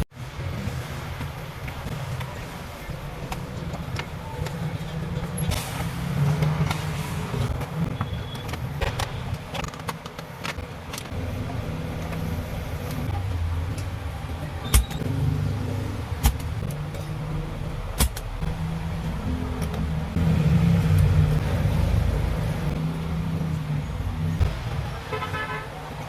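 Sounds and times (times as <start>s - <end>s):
steady low rumble: 8.7s - 26.0s.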